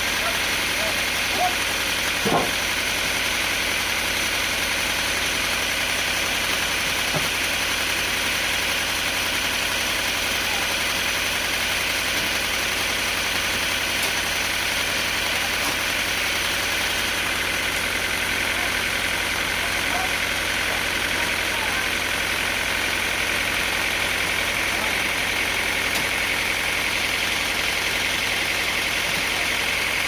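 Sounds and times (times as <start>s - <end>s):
sawmill machinery droning: 0.0s - 30.0s.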